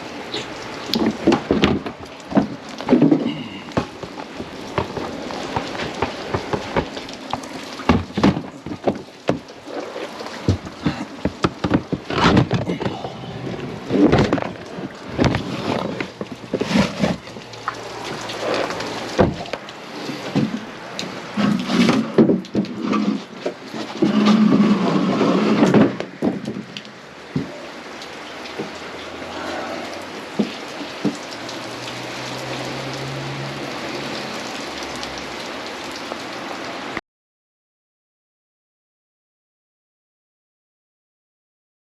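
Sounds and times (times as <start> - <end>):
rain falling: 0.0 - 37.0
boxes and gear knocking: 0.9 - 9.5, 10.4 - 17.3.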